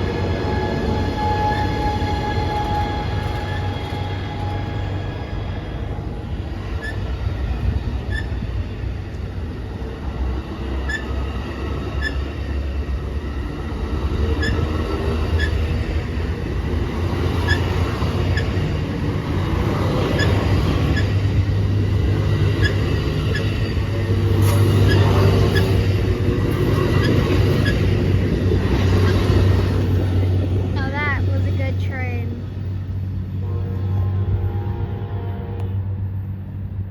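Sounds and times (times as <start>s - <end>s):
train rumbling: 0.0s - 36.9s
wheels clicking over rail joints: 14.0s - 30.8s
faint wheel squeal: 24.5s - 25.8s.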